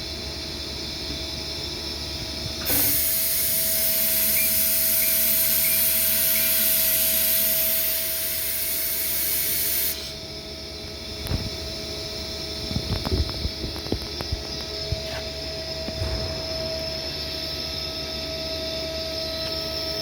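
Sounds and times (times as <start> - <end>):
lathe hissing: 2.6 - 10.2
lathe whining: 2.6 - 10.3.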